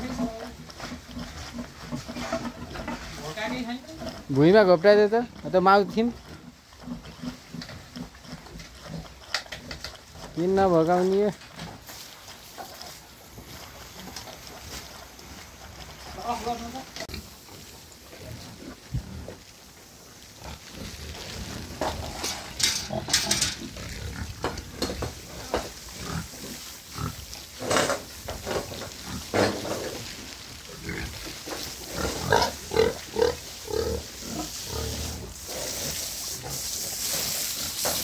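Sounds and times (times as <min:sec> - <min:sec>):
pigs grunting and squealing: 0:00.0 - 0:12.0, 0:20.2 - 0:38.0.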